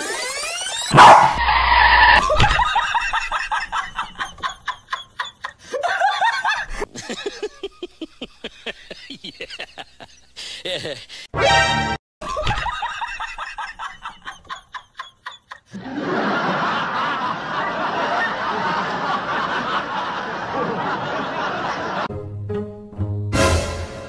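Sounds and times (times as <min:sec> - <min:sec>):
people laughing: 0:02.1 - 0:11.3, 0:12.2 - 0:22.1
rhythmic snickering: 0:02.8 - 0:11.3.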